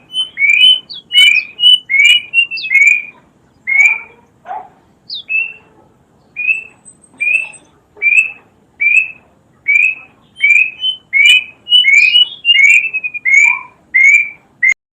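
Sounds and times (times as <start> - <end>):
faint high bird chirps: 0.0 - 4.3, 5.1 - 14.8
cuckoo whistled notes: 6.4 - 14.8.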